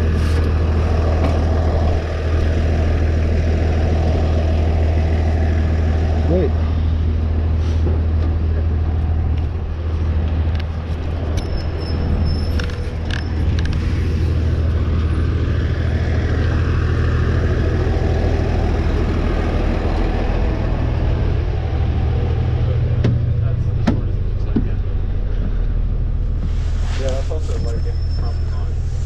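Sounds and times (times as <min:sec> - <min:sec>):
vehicle engine droning: 0:00.0 - 0:29.0
brief high squeak: 0:11.4 - 0:13.4, 0:27.5 - 0:28.8.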